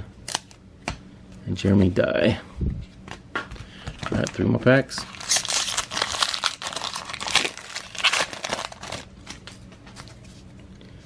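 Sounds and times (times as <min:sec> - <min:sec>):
wrapper tearing and crinkling: 0:05.0 - 0:09.6.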